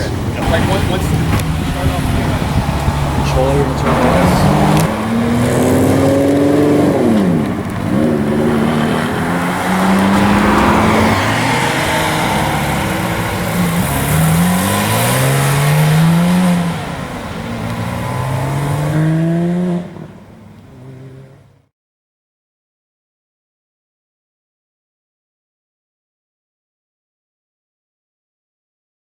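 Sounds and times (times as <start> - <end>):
car engine accelerating: 0.0 - 21.7.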